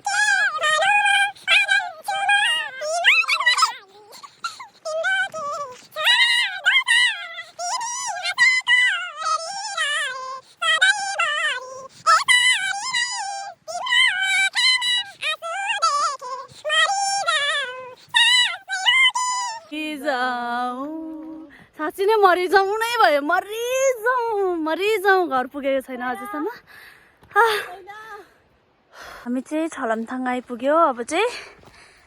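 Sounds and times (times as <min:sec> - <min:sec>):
high-pitched voice singing: 0:00.0 - 0:24.6.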